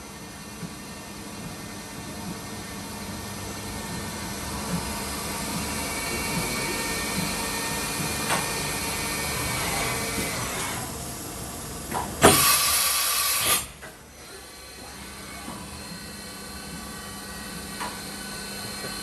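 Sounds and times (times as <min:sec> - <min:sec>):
machining center humming: 0:00.2 - 0:11.9
loud air hiss: 0:12.2 - 0:13.7.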